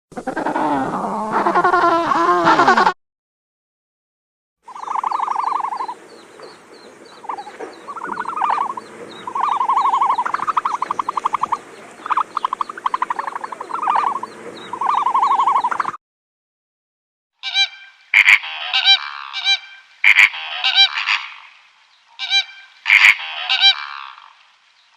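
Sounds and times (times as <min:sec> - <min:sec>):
frogs trilling: 0:04.7 - 0:16.0.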